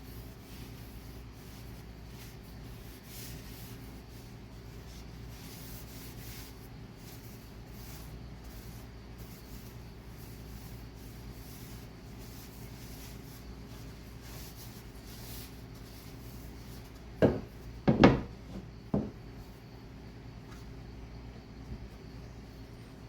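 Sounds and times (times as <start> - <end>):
faint steady hum: 0.0 - 23.0
sharp wooden knocks: 17.2 - 18.3.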